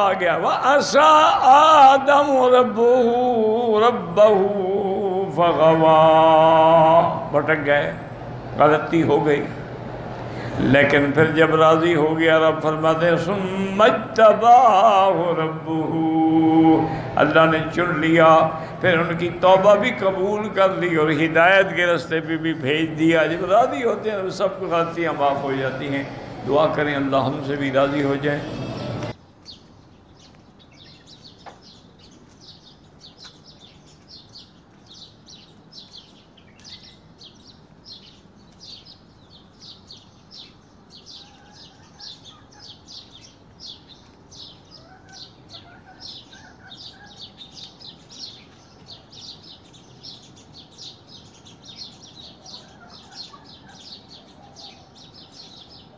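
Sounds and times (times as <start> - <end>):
birds chirping: 0.0 - 55.9
lower bird calls: 28.4 - 55.9.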